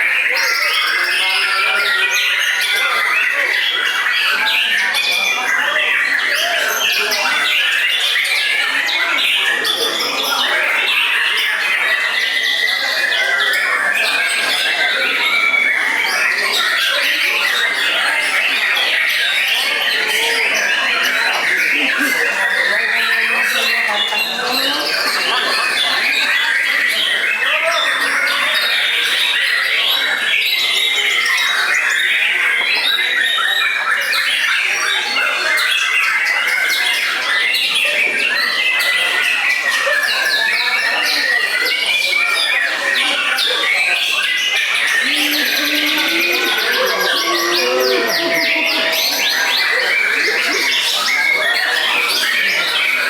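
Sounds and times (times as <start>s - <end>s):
birds whistling and trilling: 0.0s - 53.0s
murmur of voices: 0.0s - 53.0s
songbirds singing: 39.8s - 53.0s.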